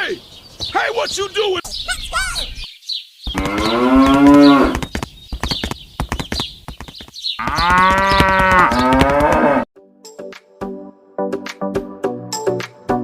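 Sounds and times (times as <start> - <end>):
cow mooing: 3.3 - 4.8, 7.4 - 9.6.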